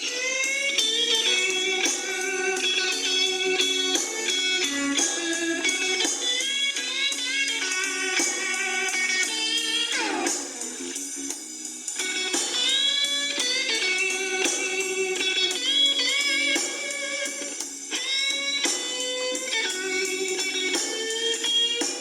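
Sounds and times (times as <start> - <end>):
electric blues guitar solo: 0.0 - 22.0.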